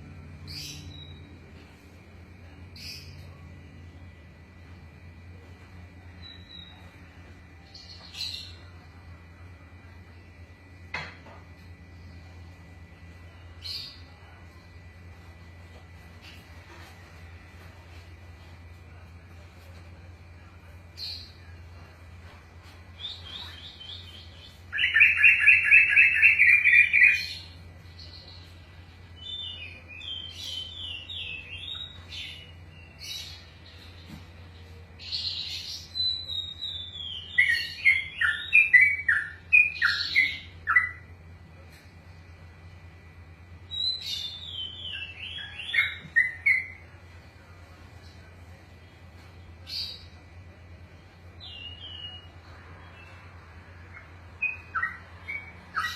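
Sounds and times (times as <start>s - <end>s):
bird singing: 0.0s - 1.7s, 2.4s - 5.1s, 6.0s - 9.0s, 23.0s - 41.2s, 43.7s - 47.0s, 51.4s - 55.9s
steady low hum: 0.0s - 55.9s.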